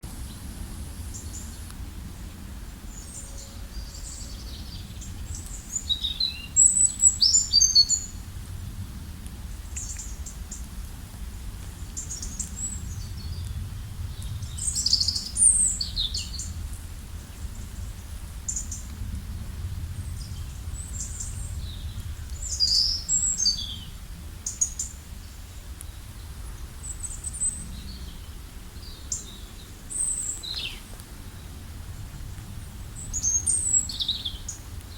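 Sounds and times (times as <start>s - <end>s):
songbirds singing and chirping: 0.1s - 8.3s, 9.1s - 10.7s, 11.7s - 34.9s
steady low rumble: 8.0s - 34.9s.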